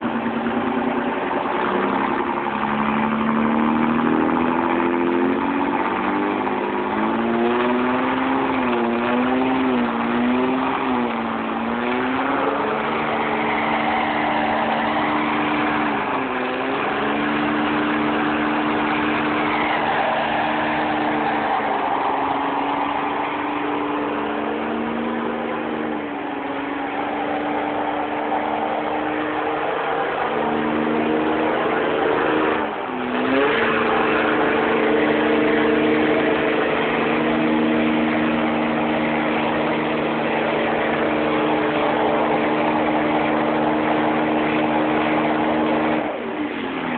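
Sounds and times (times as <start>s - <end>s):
car engine revving high: 0.0s - 46.9s
spinning tyres rushing: 0.0s - 46.9s.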